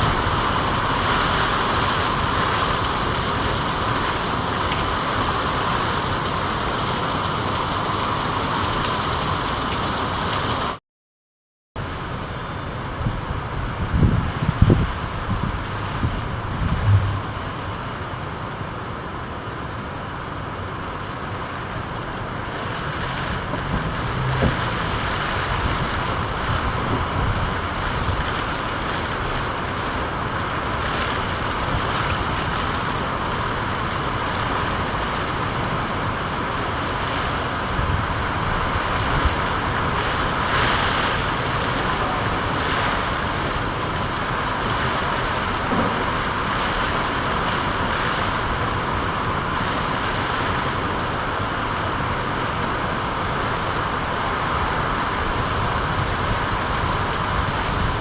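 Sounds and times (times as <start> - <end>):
steady rain hiss: 0.0 - 10.8, 11.8 - 58.0
low thump: 16.7 - 17.4.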